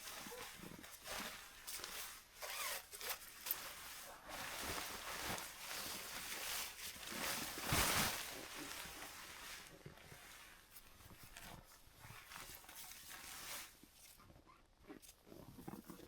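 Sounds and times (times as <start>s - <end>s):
zipper being pulled: 0.2s - 3.6s.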